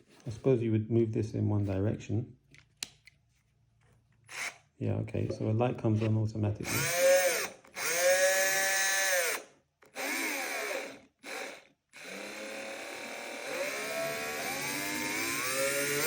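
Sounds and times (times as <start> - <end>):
cordless drill motor whining: 4.3 - 4.6, 6.6 - 16.0.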